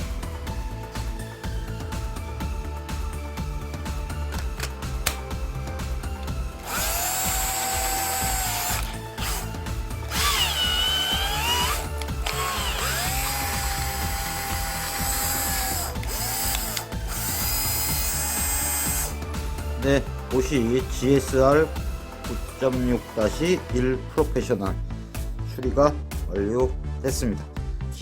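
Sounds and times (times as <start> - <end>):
cordless drill running: 6.5 - 19.2.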